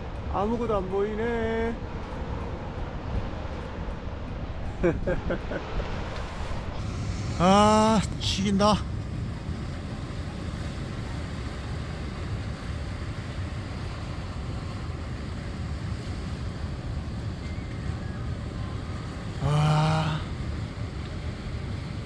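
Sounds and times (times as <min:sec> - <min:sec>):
wind buffeting microphone: 0:00.0 - 0:19.4, 0:20.2 - 0:22.0
sea waves breaking on shore: 0:05.6 - 0:22.0.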